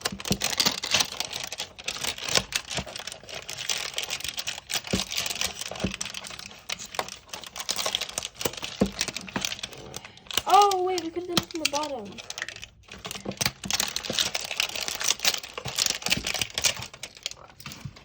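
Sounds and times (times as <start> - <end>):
plastic wrapper crinkling: 0.0 - 18.0.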